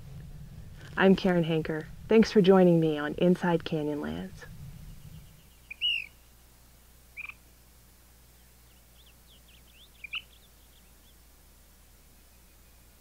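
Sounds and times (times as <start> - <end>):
small birds chirping: 2.9 - 6.4, 7.1 - 7.5, 8.2 - 11.4, 12.0 - 13.0.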